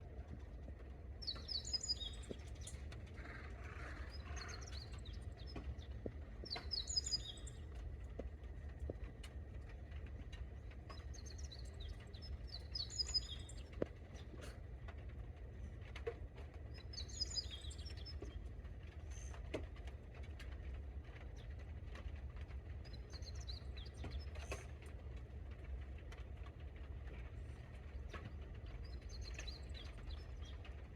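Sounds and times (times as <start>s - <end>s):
light rain ticking: 0.0s - 30.9s
steady low rumble: 0.0s - 30.9s
songbird chirping: 1.2s - 3.0s, 3.8s - 9.1s, 10.4s - 14.4s, 16.7s - 18.4s, 28.0s - 30.8s.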